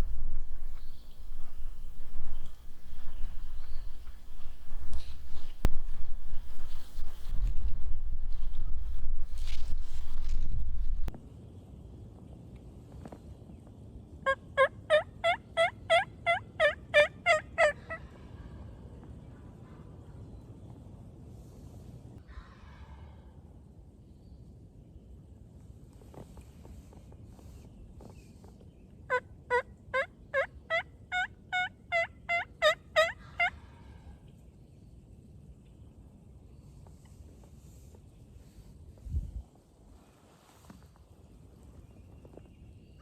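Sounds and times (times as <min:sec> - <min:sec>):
turkey yelps: 0:14.6 - 0:18.0, 0:29.1 - 0:33.6.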